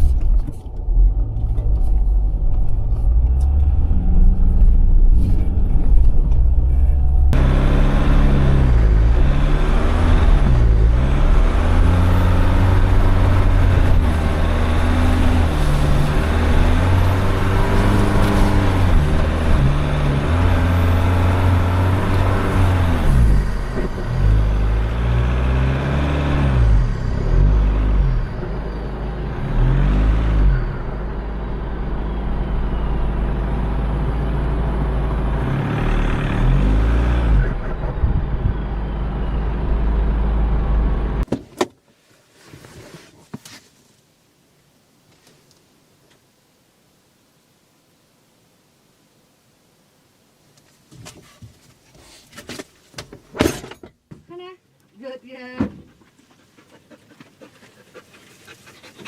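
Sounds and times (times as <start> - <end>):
engine revving: 0.9 - 41.3.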